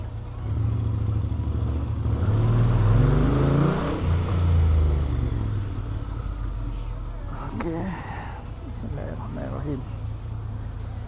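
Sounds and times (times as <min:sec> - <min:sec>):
motorcycle engine accelerating: 0:00.0 - 0:06.7.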